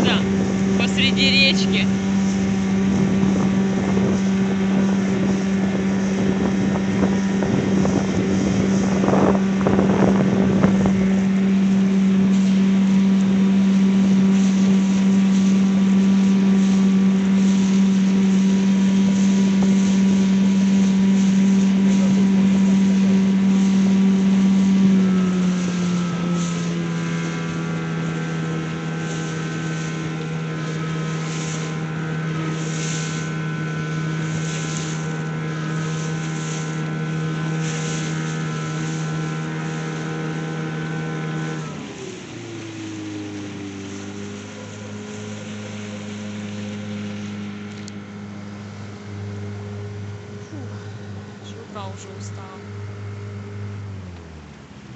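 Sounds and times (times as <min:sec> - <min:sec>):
wind on microphone: 0:00.0 - 0:13.3
outboard motor running: 0:00.0 - 0:54.9.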